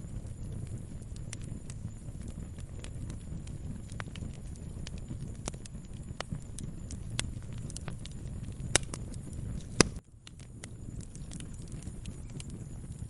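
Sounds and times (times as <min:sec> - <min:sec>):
loud fire pops: 0:00.0 - 0:13.0
wood fire crackling: 0:00.0 - 0:13.0.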